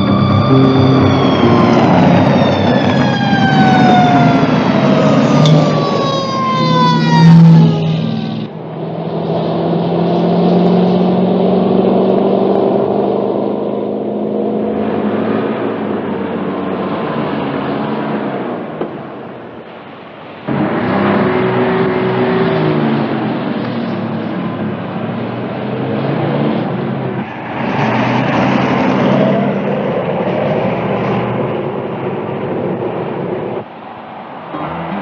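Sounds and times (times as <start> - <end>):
car engines running: 0.0 - 35.0.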